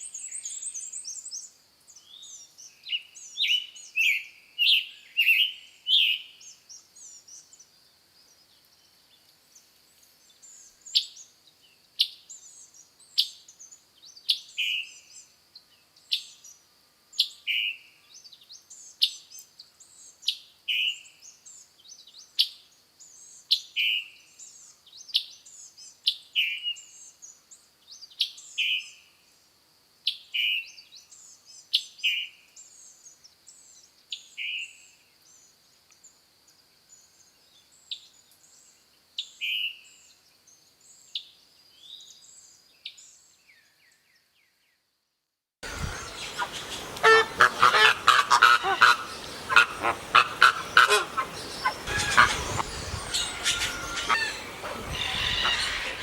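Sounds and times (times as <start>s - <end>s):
faint higher bird chirps: 45.6s - 56.0s
songbird downward-slurred calls: 45.6s - 56.0s.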